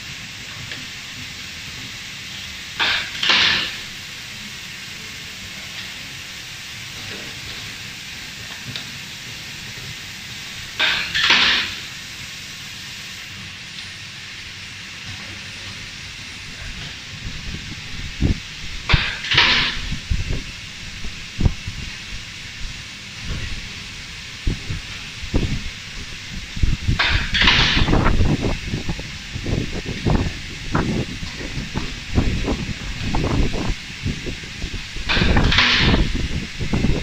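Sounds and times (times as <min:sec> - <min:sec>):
machine background noise: 0:00.0 - 0:37.0
laser welder firing bursts: 0:02.7 - 0:04.1, 0:10.8 - 0:12.1, 0:18.7 - 0:20.2.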